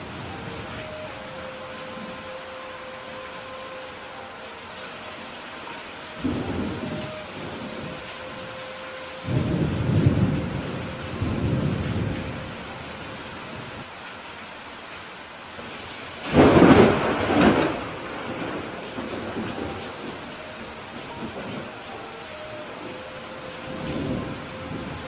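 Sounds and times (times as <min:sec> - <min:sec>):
steady rain: 0:00.0 - 0:25.0
thunder rumbling: 0:06.2 - 0:13.0, 0:16.2 - 0:25.0
sharp thunderclap: 0:16.3 - 0:19.4.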